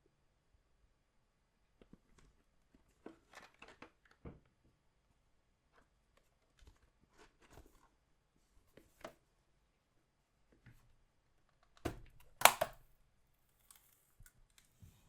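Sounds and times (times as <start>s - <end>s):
packaging crinkling and clicking: 12.2s - 12.8s.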